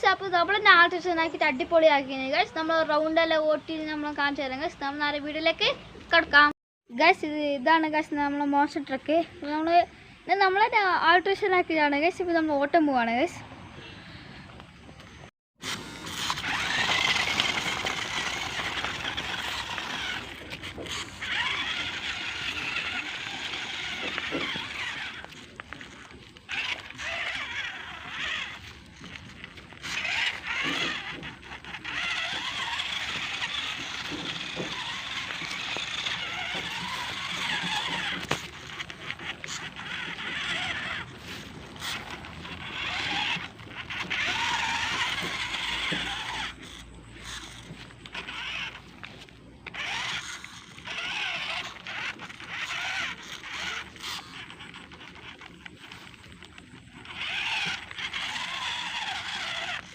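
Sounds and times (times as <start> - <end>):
radio-controlled truck motor: 15.0 - 59.9.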